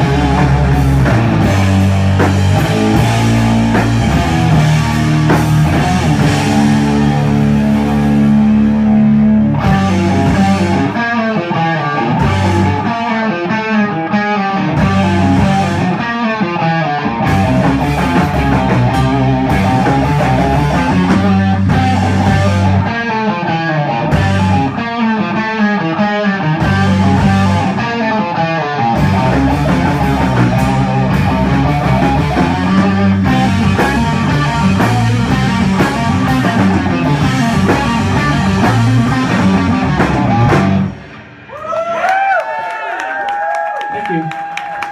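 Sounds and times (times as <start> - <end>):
heavy electric guitar riffs: 0.0 - 41.8
rock band playing live: 0.0 - 41.8.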